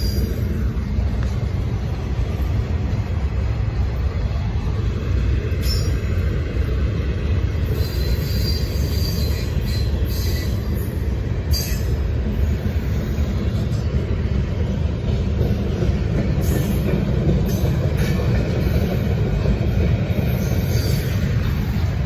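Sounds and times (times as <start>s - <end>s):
train wheels rumbling on rail: 0.0s - 22.0s
high-pitched wheel squeal: 5.6s - 6.1s, 7.7s - 10.9s.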